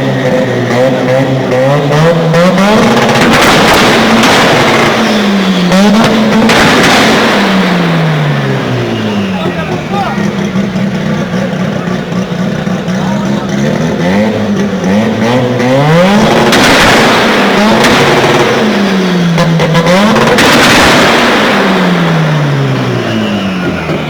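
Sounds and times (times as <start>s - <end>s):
car engine revving: 0.0s - 24.0s
exhaust pops and bangs: 0.2s - 24.0s.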